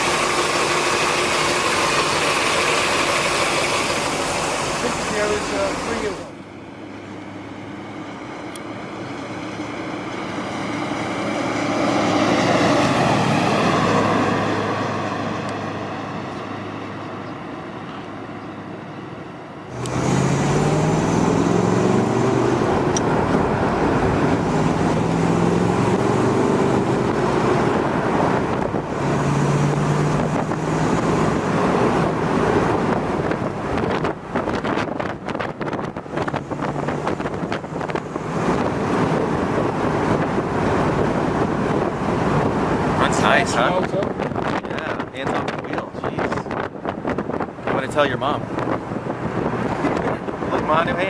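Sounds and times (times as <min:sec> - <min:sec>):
car engine accelerating: 0:00.0 - 0:06.5, 0:19.7 - 0:51.0.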